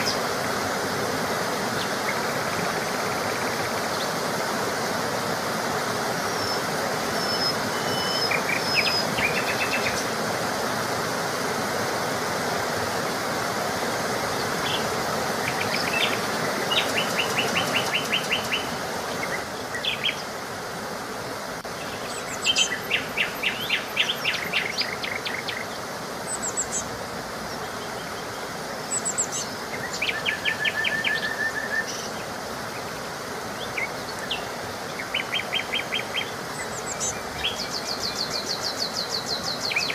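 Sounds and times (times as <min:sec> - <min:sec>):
running water rushing: 0:00.0 - 0:39.9
songbirds singing trilled phrases: 0:06.2 - 0:10.2, 0:14.4 - 0:20.4, 0:21.7 - 0:32.9, 0:33.5 - 0:39.9.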